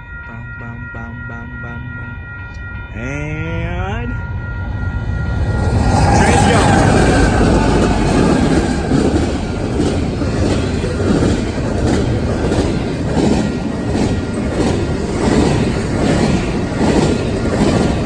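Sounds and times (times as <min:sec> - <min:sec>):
freight train rumbling: 0:02.6 - 0:18.0
wheels clacking over rail joints: 0:06.1 - 0:18.0.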